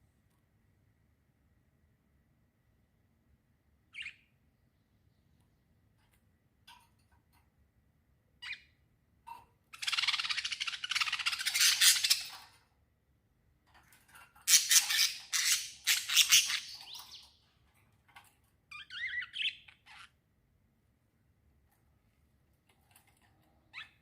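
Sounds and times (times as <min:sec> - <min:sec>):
small birds chirping: 0:03.9 - 0:06.2, 0:08.4 - 0:09.0, 0:09.7 - 0:12.6, 0:14.3 - 0:17.7, 0:18.7 - 0:20.2, 0:22.7 - 0:24.0.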